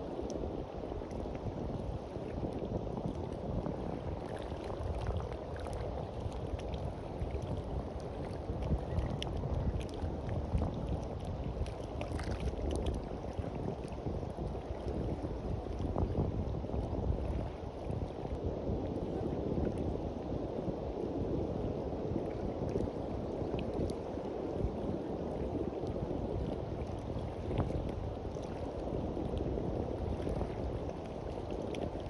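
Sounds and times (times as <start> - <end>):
small waves washing onto beach: 0.0 - 32.0
wind rumble on microphone: 0.0 - 32.0.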